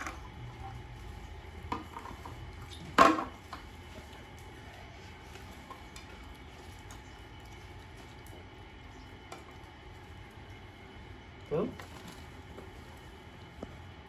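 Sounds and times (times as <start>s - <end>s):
dishes clinking: 1.7s - 3.5s.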